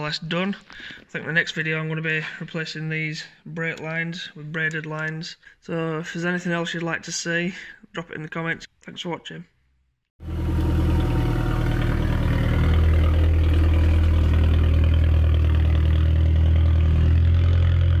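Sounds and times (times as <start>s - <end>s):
car engine running: 10.2s - 18.0s.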